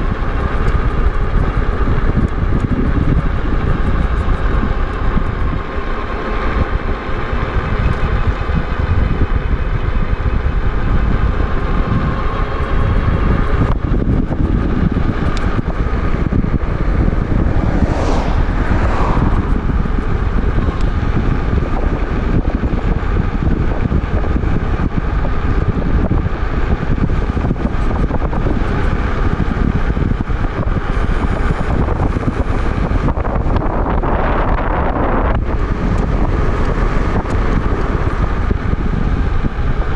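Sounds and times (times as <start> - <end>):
e-bike motor whine: 0.0 - 39.9
wind rumbling on microphone: 0.0 - 39.9
loud rush: 15.8 - 21.4.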